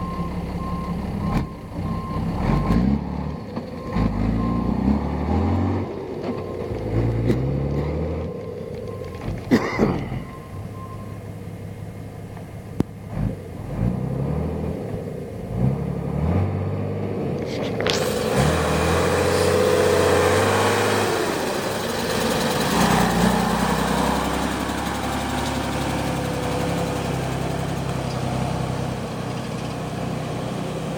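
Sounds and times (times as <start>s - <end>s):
diesel engine running: 0.0s - 30.9s
engine knocks: 6.0s - 13.5s.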